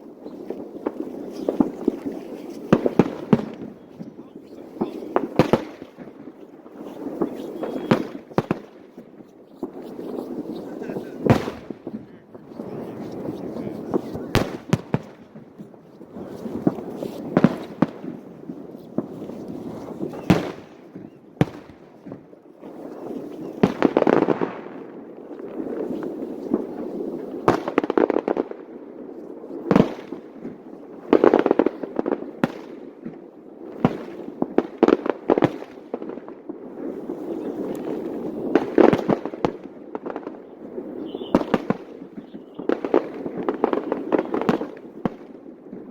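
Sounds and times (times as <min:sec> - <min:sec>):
fireworks crackling and fizzing: 0:00.0 - 0:45.9
firework shells bursting: 0:00.2 - 0:24.9, 0:36.9 - 0:45.3.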